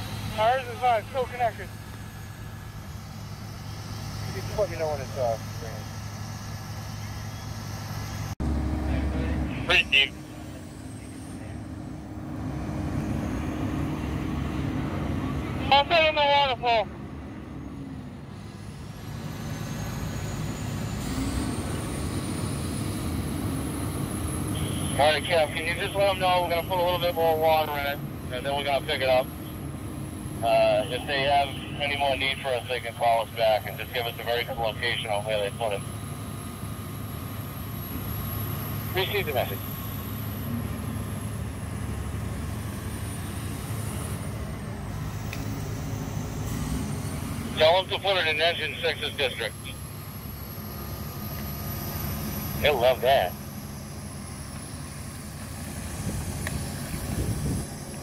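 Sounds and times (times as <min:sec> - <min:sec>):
faint high whine: 0:00.0 - 0:12.0, 0:24.0 - 0:41.9, 0:42.7 - 0:58.0
vehicle engine rumbling: 0:00.0 - 0:58.0.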